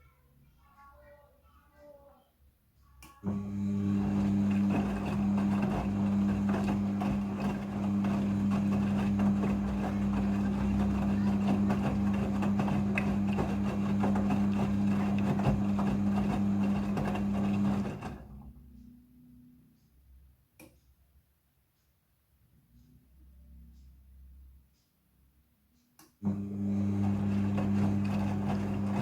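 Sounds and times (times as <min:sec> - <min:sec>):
washing machine hum: 0:03.1 - 0:18.8, 0:26.2 - 0:29.0.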